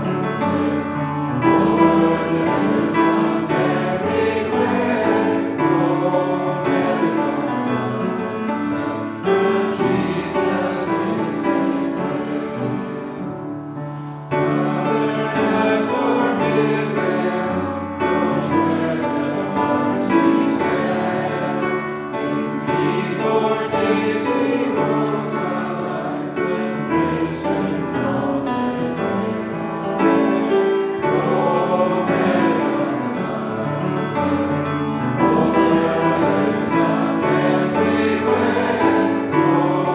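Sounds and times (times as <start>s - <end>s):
congregation singing a hymn: 0.0s - 39.9s.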